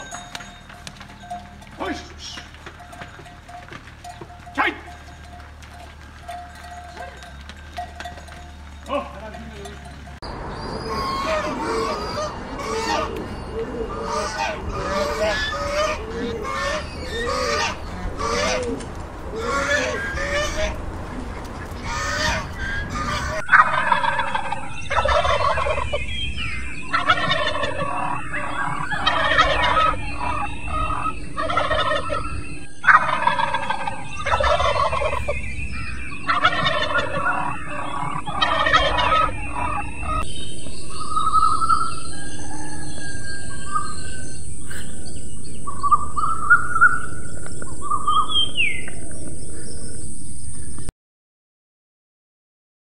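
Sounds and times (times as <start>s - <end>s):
turkeys gobbling: 0.0s - 50.0s
whistled songbird calls: 22.6s - 50.9s.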